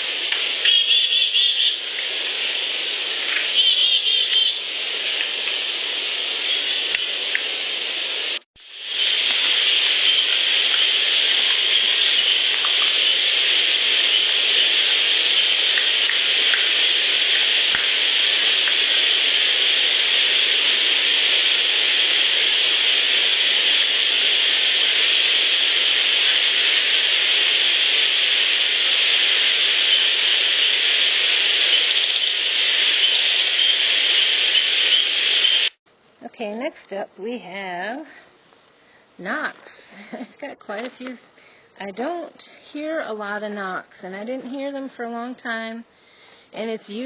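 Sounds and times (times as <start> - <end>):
loud steady hiss: 0.0 - 47.0
faint clicks: 9.2 - 13.3, 13.9 - 18.9.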